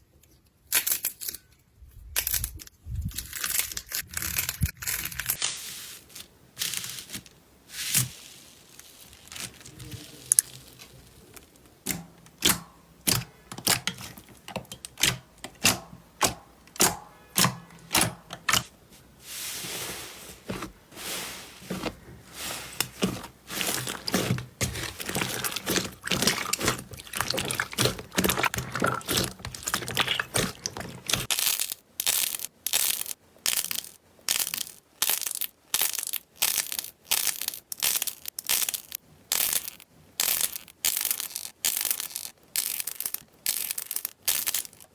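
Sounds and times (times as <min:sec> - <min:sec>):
slime crackling and popping: 0:07.8 - 0:14.2, 0:22.8 - 0:44.9.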